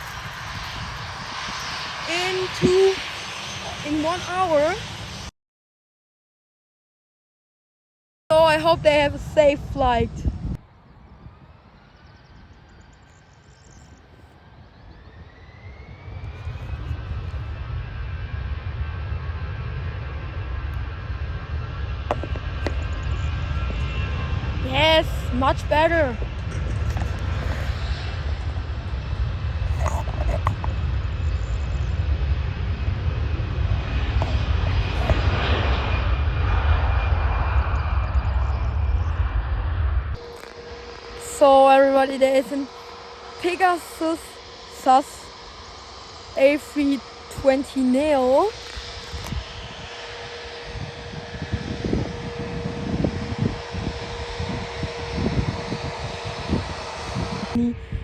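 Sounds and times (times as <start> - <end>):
jet engines rushing and whining: 0.0 - 5.4, 8.3 - 58.0.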